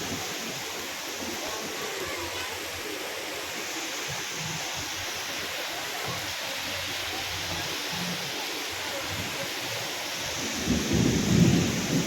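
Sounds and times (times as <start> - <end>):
heavy rain falling: 0.0 - 12.0
low rumble of thunder: 10.5 - 12.0.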